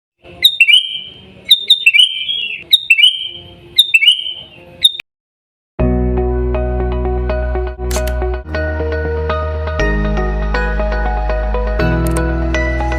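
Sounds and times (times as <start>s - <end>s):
music: 0.2s - 5.0s, 5.8s - 12.9s
bird whistled calls: 0.4s - 5.0s.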